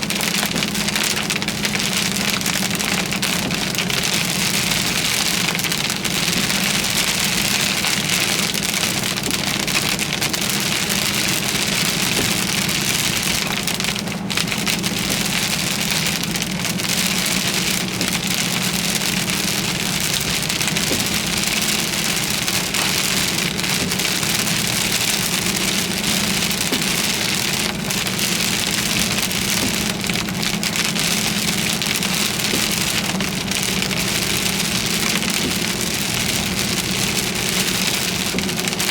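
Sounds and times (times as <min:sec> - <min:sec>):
car low hum: 0:00.0 - 0:38.9
heavy rain on a car: 0:00.0 - 0:38.9.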